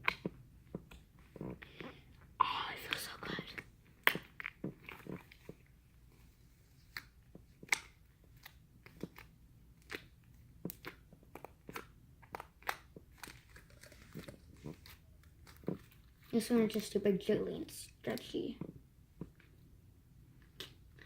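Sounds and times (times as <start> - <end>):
slime squishing clicks and pops: 4.0 - 4.9.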